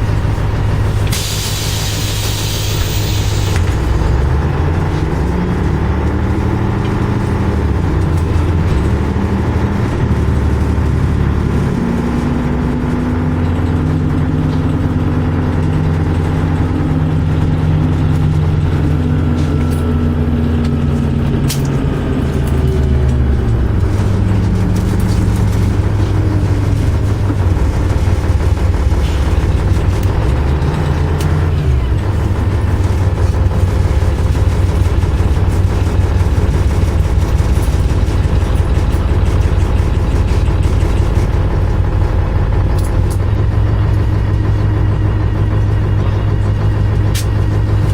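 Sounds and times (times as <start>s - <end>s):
bus engine drone: 0.0s - 47.9s.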